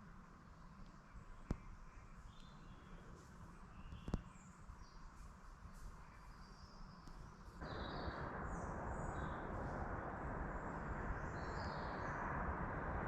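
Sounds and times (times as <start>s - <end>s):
small birds chirping: 0.7s - 13.0s
steady rushing noise: 7.6s - 13.0s.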